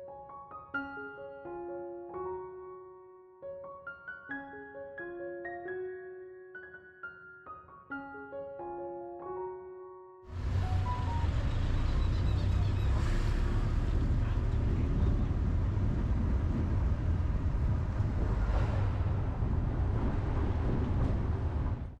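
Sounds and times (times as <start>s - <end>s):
traffic: 10.3s - 22.0s
wind buffeting microphone: 10.4s - 22.0s.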